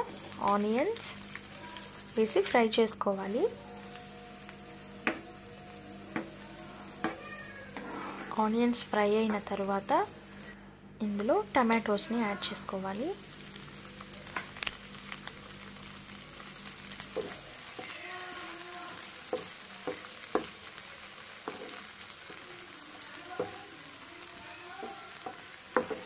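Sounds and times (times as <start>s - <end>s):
vegetables sizzling in hot oil: 0.0s - 26.0s
wooden spatula scraping a pan: 7.1s - 8.5s.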